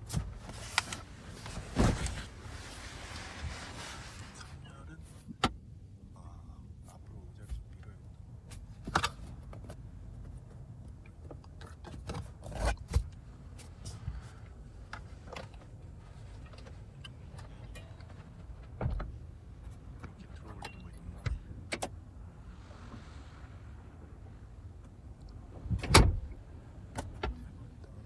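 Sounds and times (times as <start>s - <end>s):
steady low hum: 0.0s - 28.0s
clicks of car interior fittings: 8.5s - 22.0s, 24.8s - 27.5s.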